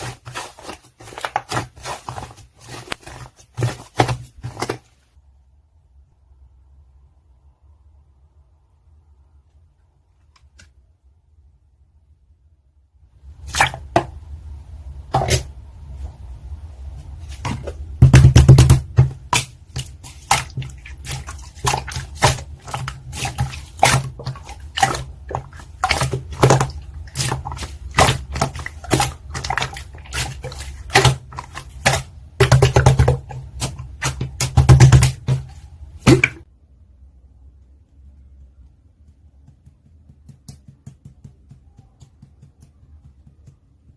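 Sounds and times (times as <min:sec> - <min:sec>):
slime squelching and popping: 0:00.0 - 0:04.8, 0:17.3 - 0:36.5.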